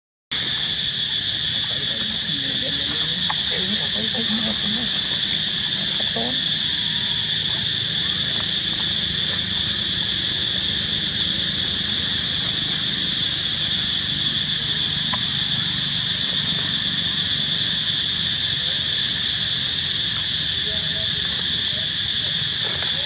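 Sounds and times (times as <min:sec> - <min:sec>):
insect chorus drone: 0:00.3 - 0:23.0
low background murmur: 0:01.4 - 0:19.4.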